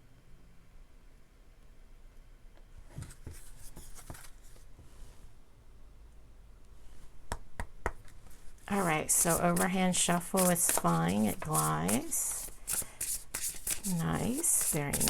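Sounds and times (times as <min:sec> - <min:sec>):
cards rustling and sliding: 0:03.0 - 0:04.7, 0:08.1 - 0:15.0
cards tapping: 0:07.3 - 0:15.0.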